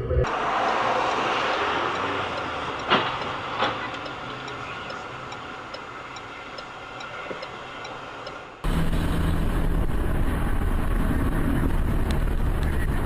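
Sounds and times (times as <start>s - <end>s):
vehicle road noise: 0.0s - 13.0s
faint regular ticking: 0.7s - 8.6s.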